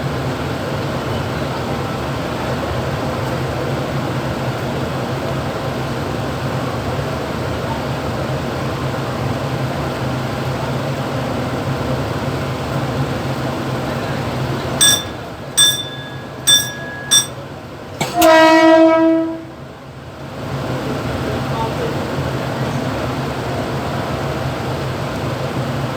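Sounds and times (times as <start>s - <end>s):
electric train running: 14.8s - 17.4s
train horn blast: 18.2s - 19.6s.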